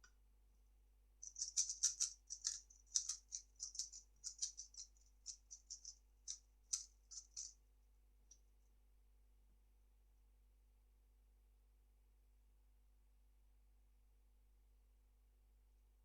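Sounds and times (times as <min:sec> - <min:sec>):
plastic cube clacking: 0:01.3 - 0:04.9.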